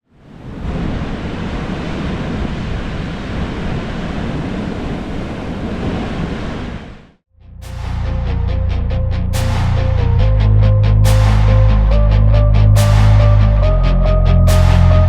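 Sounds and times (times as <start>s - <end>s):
wind: 0.0s - 7.2s
music: 7.4s - 15.0s.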